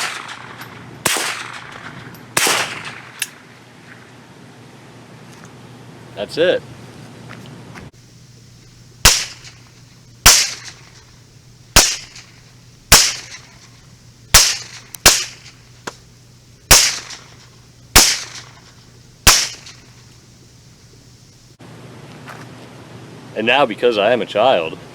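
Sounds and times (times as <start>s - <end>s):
rifle shots: 0.0s - 3.5s, 9.0s - 11.0s, 11.8s - 13.7s, 14.3s - 15.6s, 16.7s - 20.0s.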